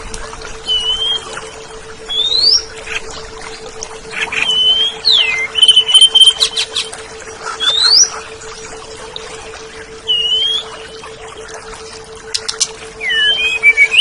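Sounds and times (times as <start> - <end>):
bird singing whistled notes: 0.6 - 1.3, 2.1 - 3.0, 4.2 - 6.9, 7.6 - 8.2, 10.0 - 10.8, 12.4 - 14.0.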